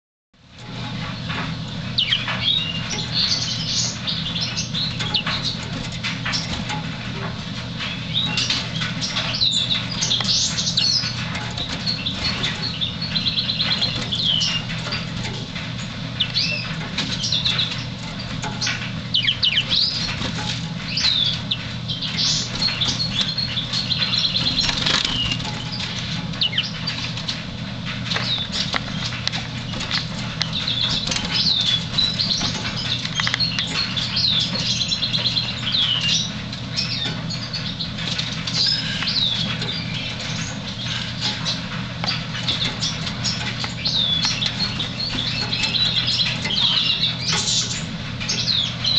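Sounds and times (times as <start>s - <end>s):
steady low hum: 0.4s - 48.9s
canary singing: 0.7s - 48.9s.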